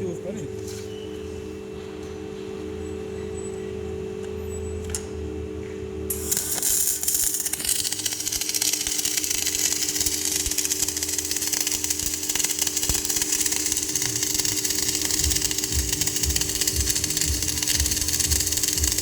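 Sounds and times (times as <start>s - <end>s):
welding machine humming and hissing: 0.0s - 19.0s.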